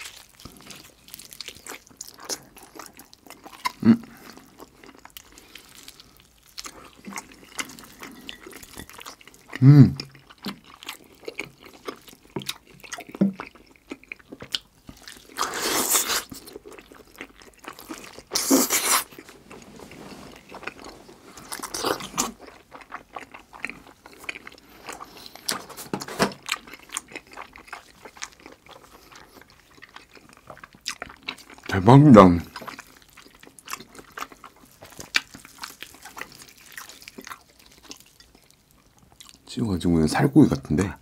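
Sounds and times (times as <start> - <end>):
close chewing and biting: 0.0 - 19.6, 20.3 - 39.5.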